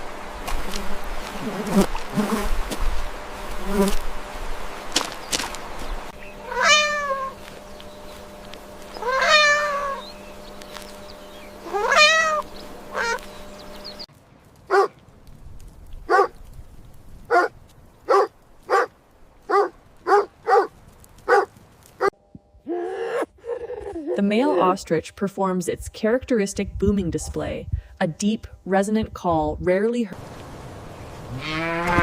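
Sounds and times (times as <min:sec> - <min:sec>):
cat meowing: 0:06.5 - 0:07.4, 0:09.0 - 0:10.0, 0:11.7 - 0:12.4.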